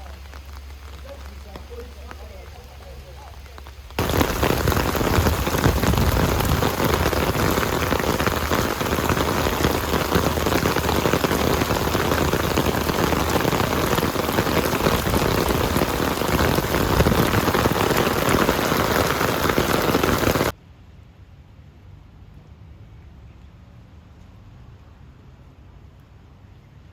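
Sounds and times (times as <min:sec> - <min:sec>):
heavy rain falling: 0:00.0 - 0:20.6.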